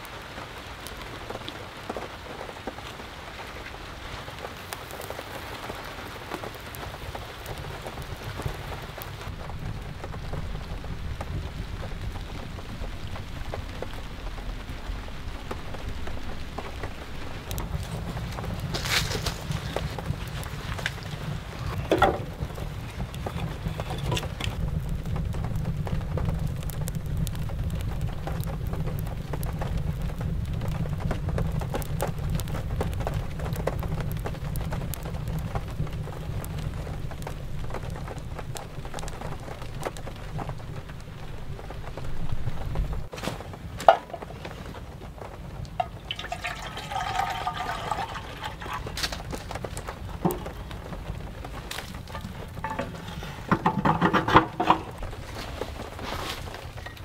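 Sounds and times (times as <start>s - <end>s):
rain falling: 0.0s - 57.0s
wood fire crackling in a stove: 0.0s - 57.0s
low rumble: 8.0s - 43.1s
drips: 45.7s - 55.0s
metal clanks of stove: 52.0s - 55.0s.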